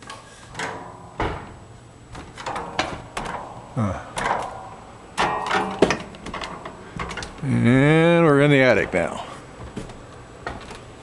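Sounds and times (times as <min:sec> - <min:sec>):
stairs creaking: 0:00.5 - 0:07.9, 0:08.8 - 0:11.0
footsteps on creaking attic stairs: 0:00.5 - 0:08.0, 0:08.7 - 0:11.0.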